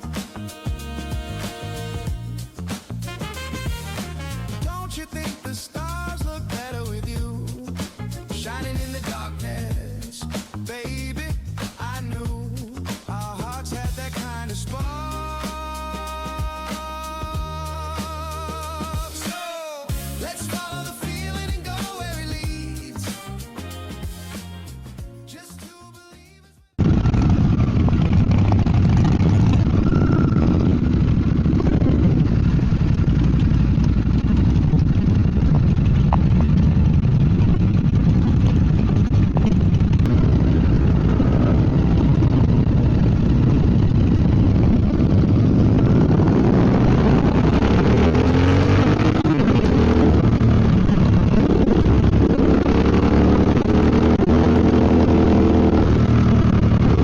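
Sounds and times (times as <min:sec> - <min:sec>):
motorcycle engine running: 0:00.0 - 0:05.2, 0:05.8 - 0:19.2, 0:26.8 - 0:57.0
road rumble: 0:00.0 - 0:18.9, 0:26.8 - 0:57.0
heavy wind: 0:26.8 - 0:57.0.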